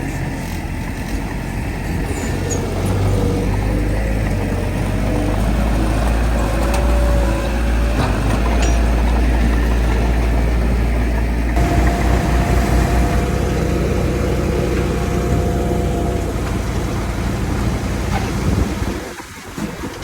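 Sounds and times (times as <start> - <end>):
heavy diesel machinery engine rumbling: 0.0 - 20.0
steady whine: 3.5 - 19.1.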